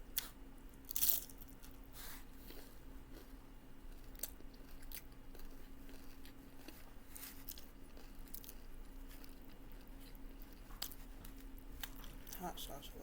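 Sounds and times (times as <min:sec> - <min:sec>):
person chewing crunchy food: 0:00.1 - 0:12.7.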